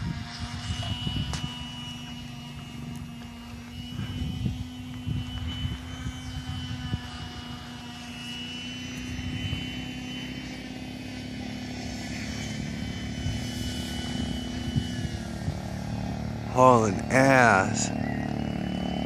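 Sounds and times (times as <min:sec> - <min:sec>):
wind buffeting microphone: 0:00.0 - 0:08.2, 0:09.0 - 0:11.3, 0:12.4 - 0:17.1
small engine running at high speed: 0:00.0 - 0:19.0.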